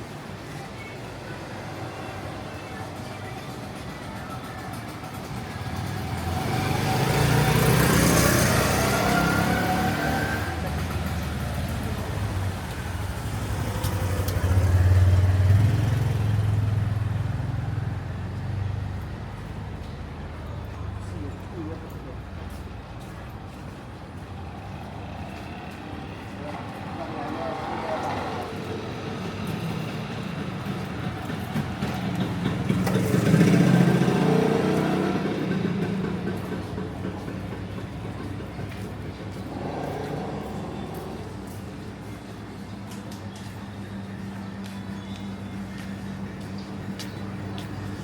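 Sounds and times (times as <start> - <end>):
street noise hum: 0.0 - 48.0
vehicle engine passing by: 5.4 - 19.6, 32.1 - 42.4.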